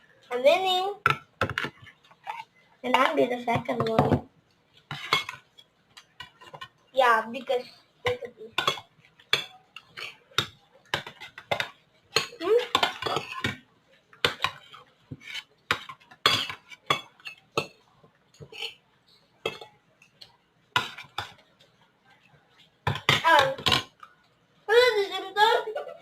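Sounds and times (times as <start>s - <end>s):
spoons clinking on plates: 4.8s - 6.8s, 8.0s - 13.6s, 15.7s - 18.8s, 19.4s - 21.7s.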